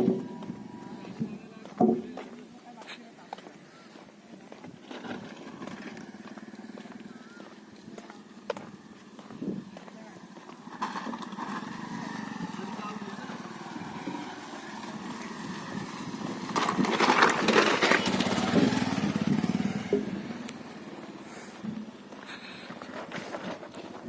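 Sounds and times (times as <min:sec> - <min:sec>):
vehicle engine passing by: 0:09.6 - 0:21.6.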